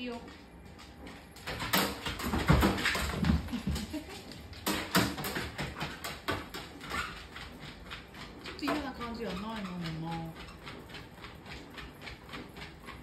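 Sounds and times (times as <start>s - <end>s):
dog paws on treadmill: 0.0s - 13.0s.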